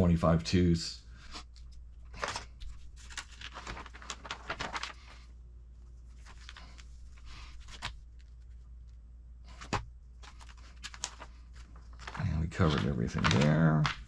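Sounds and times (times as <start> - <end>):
packaging crinkling: 2.1 - 5.2, 9.6 - 14.0.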